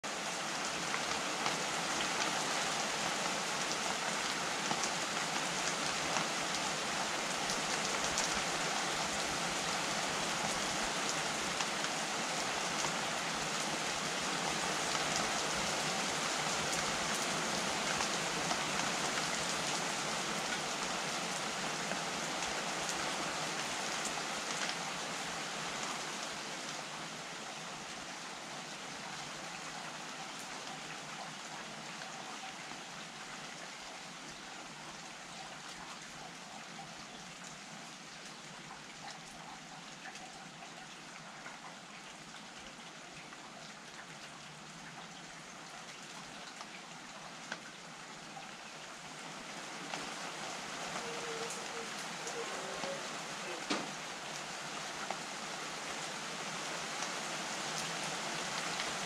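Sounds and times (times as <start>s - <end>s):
steady rain falling: 0.0s - 59.0s
raindrop ticks: 51.0s - 55.2s.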